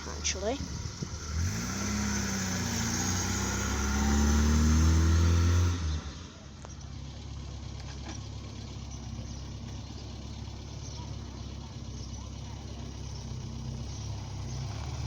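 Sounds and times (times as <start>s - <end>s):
low engine idling: 0.0s - 1.5s, 6.2s - 15.0s
car engine accelerating: 0.0s - 15.0s.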